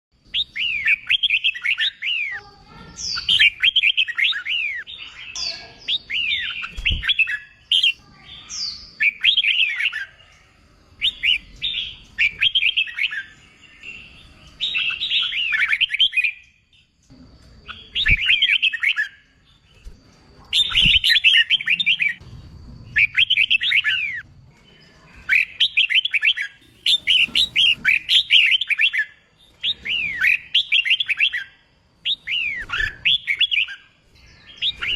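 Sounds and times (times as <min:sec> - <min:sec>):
bird singing whistled phrases: 0:03.0 - 0:10.2, 0:20.6 - 0:22.2, 0:25.3 - 0:34.9.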